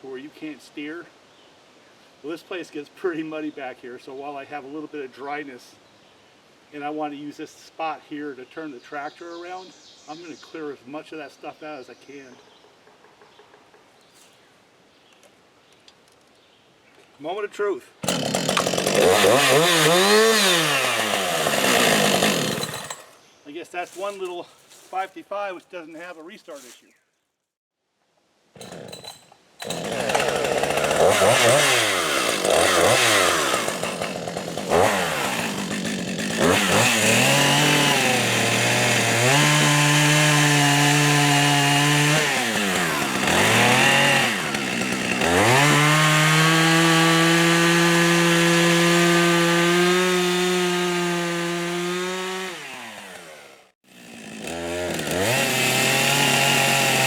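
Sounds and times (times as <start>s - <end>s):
chainsaw revving and cutting: 18.0s - 23.2s, 28.6s - 57.0s.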